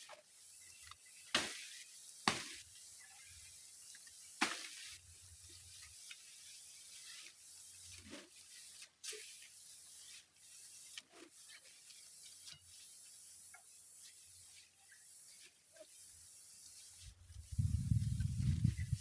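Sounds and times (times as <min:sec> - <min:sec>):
rain hissing: 0:00.0 - 0:19.0
loud low fluttering rumble: 0:17.5 - 0:19.0.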